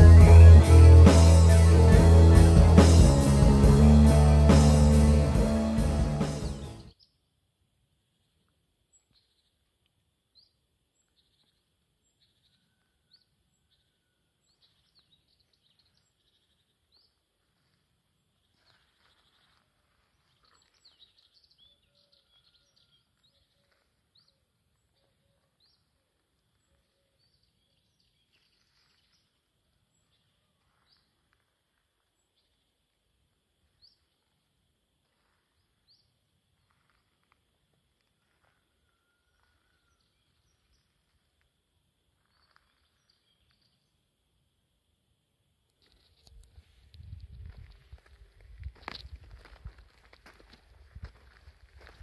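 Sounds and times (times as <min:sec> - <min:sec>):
lower repeated bird notes: 0:00.0 - 0:06.9
small birds chirping: 0:08.1 - 0:44.1.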